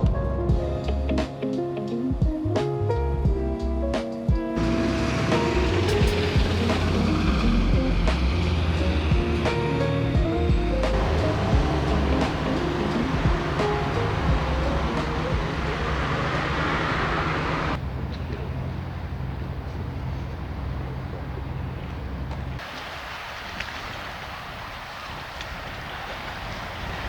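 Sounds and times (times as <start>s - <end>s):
low engine hum: 4.6s - 9.6s, 10.9s - 22.7s
wind noise: 10.9s - 27.0s.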